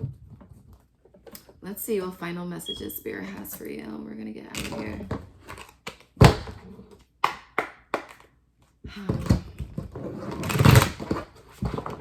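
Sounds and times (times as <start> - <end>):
cards tapping: 7.2 - 8.3.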